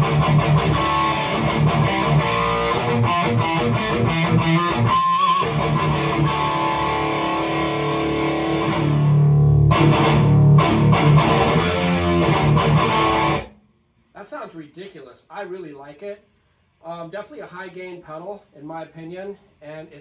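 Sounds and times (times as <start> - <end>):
distorted electric guitar chugs: 0.0 - 13.5
guitar chord ringing: 0.0 - 13.5
guitar note with vibrato: 5.6 - 13.5.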